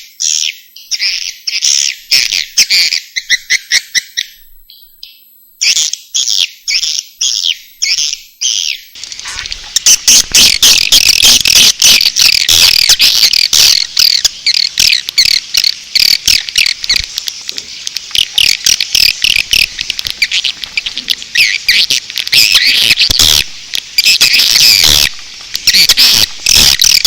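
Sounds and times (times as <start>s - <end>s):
birds twittering: 0.0s - 27.0s
sharp clicks: 9.0s - 27.0s.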